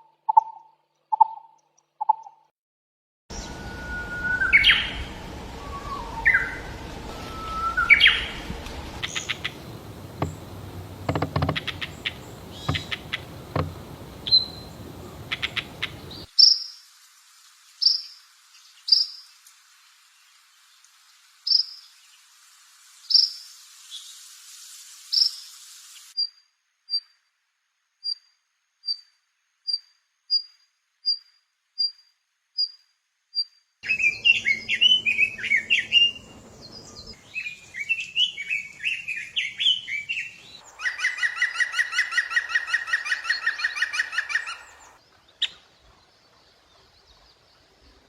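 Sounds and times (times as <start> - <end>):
songbird whistled notes: 3.3 - 16.3, 33.8 - 44.7
bird rapid clicking notes: 9.0 - 16.3
short high bird chirps: 11.6 - 16.3.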